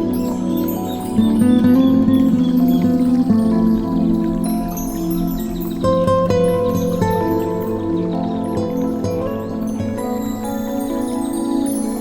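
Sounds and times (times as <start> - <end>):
new-age music with bell tones: 0.0 - 12.0.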